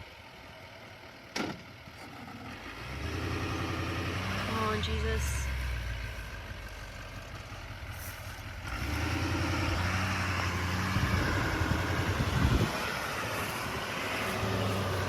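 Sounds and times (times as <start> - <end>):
truck engine straining: 0.0 - 15.0.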